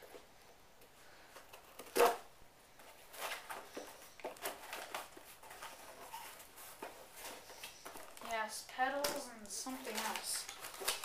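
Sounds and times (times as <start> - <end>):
packaging rustling and crinkling: 1.4 - 11.0
packaging tearing: 9.8 - 11.0.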